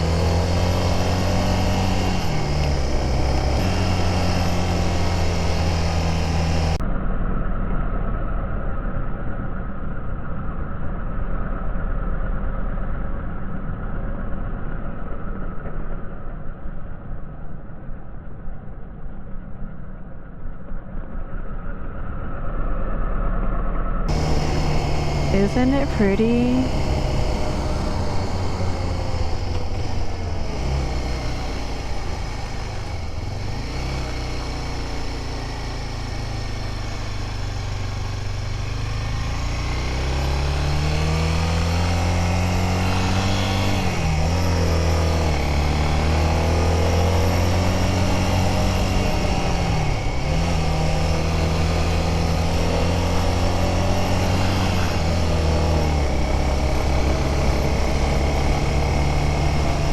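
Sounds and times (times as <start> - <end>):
motorcycle engine running: 0.0 - 6.8, 24.1 - 59.9.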